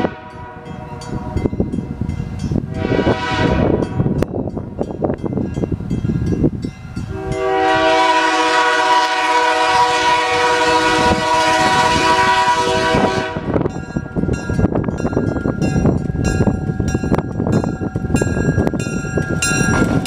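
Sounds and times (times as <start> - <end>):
locomotive air horn blast: 0.0 - 0.9, 2.7 - 3.8, 7.1 - 13.7
train rumbling with clicks: 0.0 - 8.1, 9.1 - 20.0.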